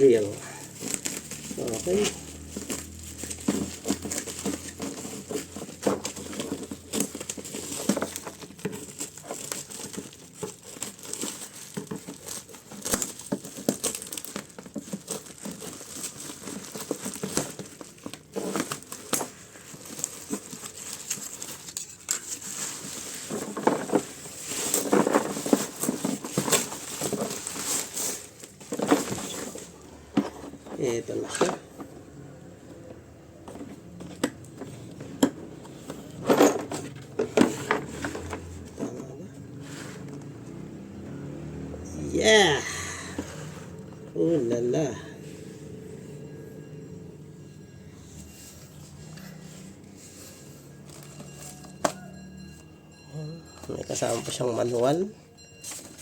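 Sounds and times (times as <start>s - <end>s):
plastic tearing: 0.0s - 30.1s
plastic packaging crinkling: 0.0s - 31.8s, 48.3s - 52.2s.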